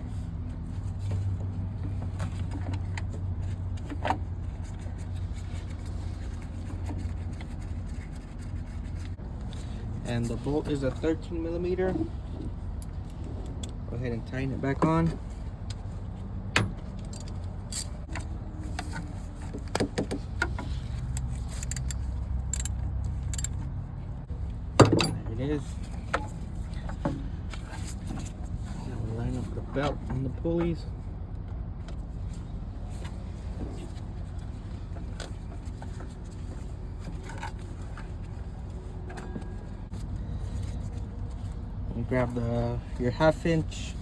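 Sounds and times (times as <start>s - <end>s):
fan belt scraping and clicking: 0.0s - 23.8s, 25.2s - 44.0s
wrench clicking on metal bolt: 21.1s - 23.6s.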